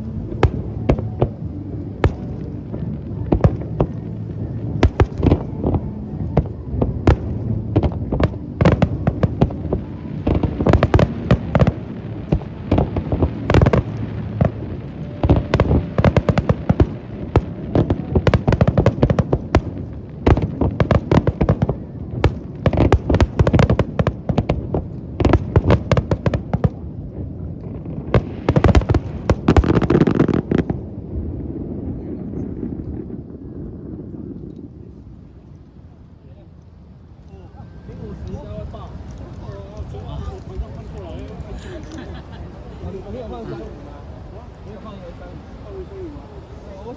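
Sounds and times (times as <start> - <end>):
fireworks bangs: 0.0 - 35.4.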